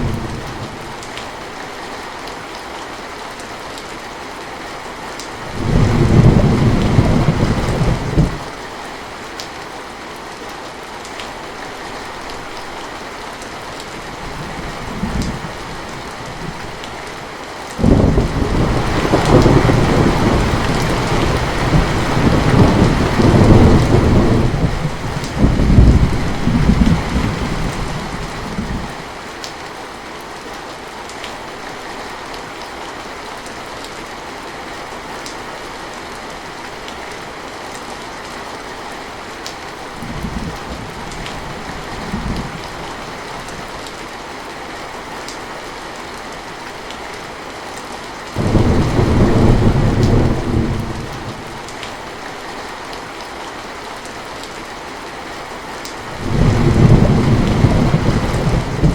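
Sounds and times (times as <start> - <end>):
heavy rain: 0.0 - 58.9
thunder rolling: 5.5 - 8.4, 17.8 - 28.9, 48.4 - 51.6, 56.2 - 58.9.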